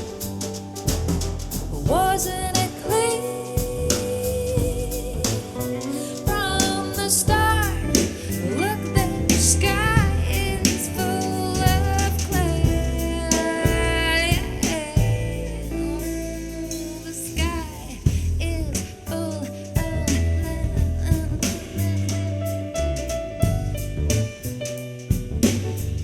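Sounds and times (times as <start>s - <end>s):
bass and percussion: 0.0s - 26.0s.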